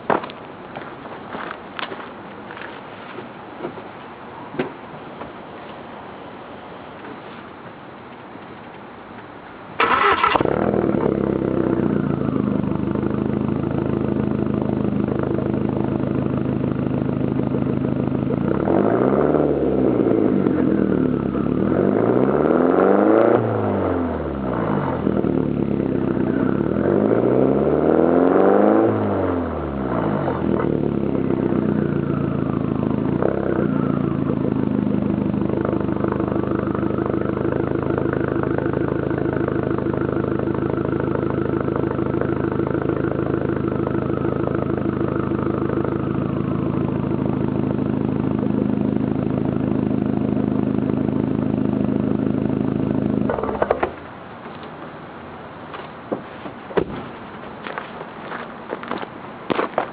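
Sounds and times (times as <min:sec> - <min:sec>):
car engine revving and idling: 0:09.8 - 0:54.4.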